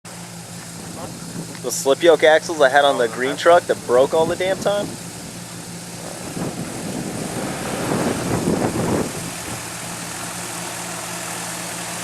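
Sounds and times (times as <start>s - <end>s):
truck engine idling: 0.1s - 12.0s.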